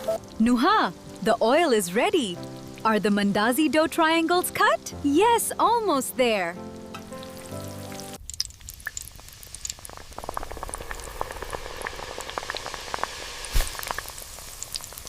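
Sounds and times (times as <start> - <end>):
dough sizzling in hot oil: 6.8 - 15.0.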